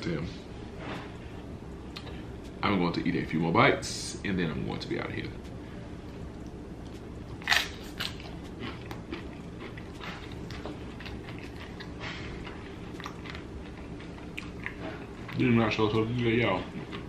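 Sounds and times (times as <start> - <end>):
crunchy nachos chewing: 6.4 - 17.0.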